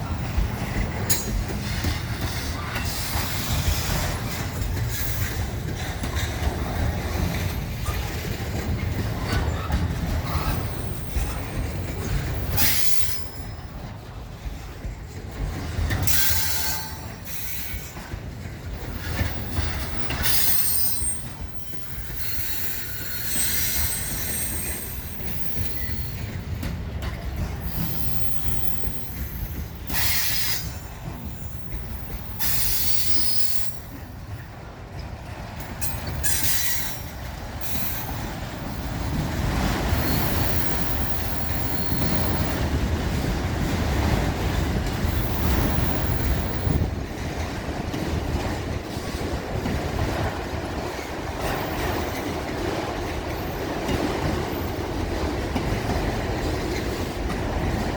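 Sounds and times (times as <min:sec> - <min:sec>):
clickety-clack over rail joints: 0:00.0 - 0:57.9
rail cars rumbling: 0:00.0 - 0:57.9
train wheels squealing on rails: 0:00.0 - 0:57.9.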